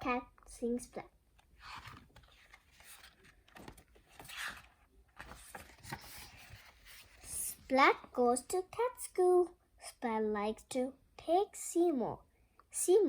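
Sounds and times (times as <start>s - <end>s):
paper pages rustling: 1.4s - 8.2s.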